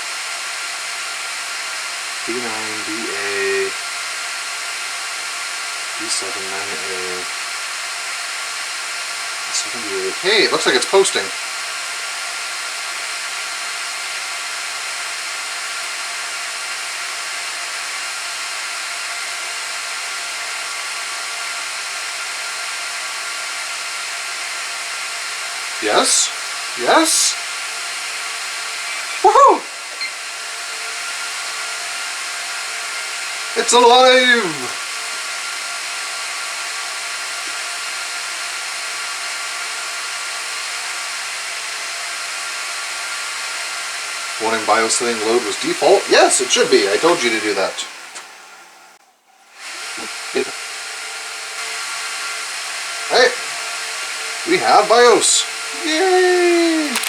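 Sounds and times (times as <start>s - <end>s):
server cooling fans whining: 0.0s - 49.0s, 50.0s - 57.0s
server cooling fans whooshing: 1.0s - 12.8s, 24.3s - 35.8s.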